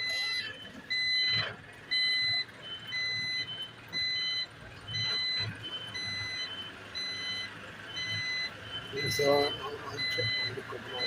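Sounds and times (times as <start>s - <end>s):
reversing alarm beeping: 0.0s - 11.0s
truck engine rumble: 0.0s - 11.0s.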